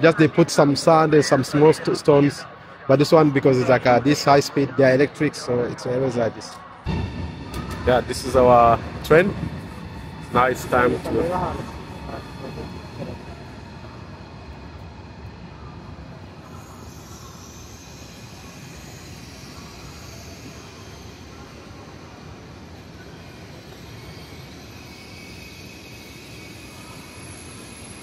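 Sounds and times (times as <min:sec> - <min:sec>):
electric train rolling: 0:06.8 - 0:28.0
faint high whine: 0:06.9 - 0:28.0.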